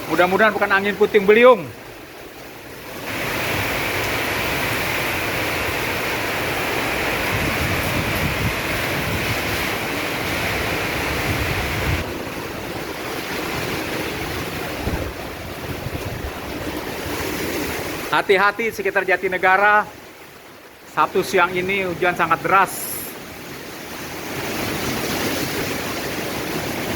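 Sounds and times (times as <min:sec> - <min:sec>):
heavy rain: 0:00.0 - 0:18.3
wind gusting against microphone: 0:00.0 - 0:19.3.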